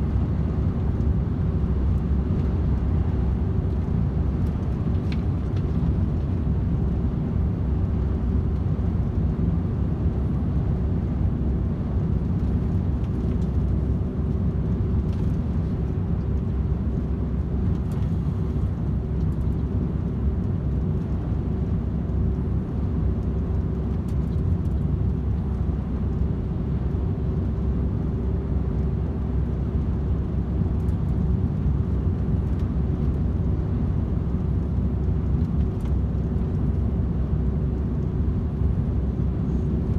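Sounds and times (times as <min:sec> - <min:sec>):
truck engine and tyres rumbling: 0:00.0 - 0:39.9.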